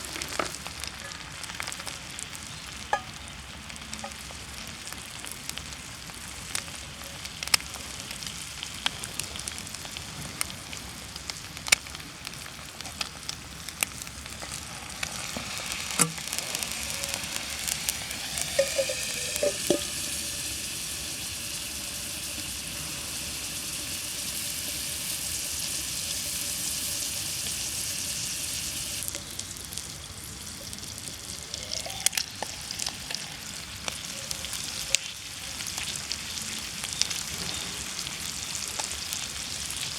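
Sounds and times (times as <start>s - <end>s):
bacon sizzling in a skillet: 0.0s - 39.9s
wood fire crackling: 0.0s - 39.9s.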